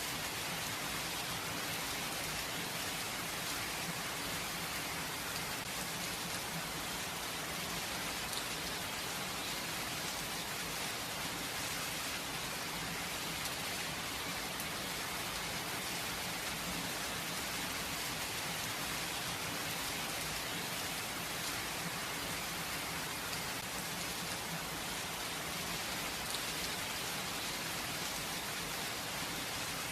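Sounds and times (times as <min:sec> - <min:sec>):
gentle rain falling: 0:00.0 - 0:29.9.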